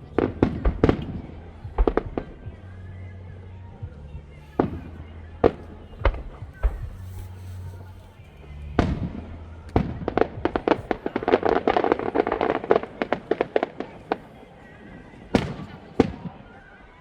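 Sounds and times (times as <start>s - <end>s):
fireworks cracks and bangs: 0.0s - 2.6s, 4.6s - 17.0s.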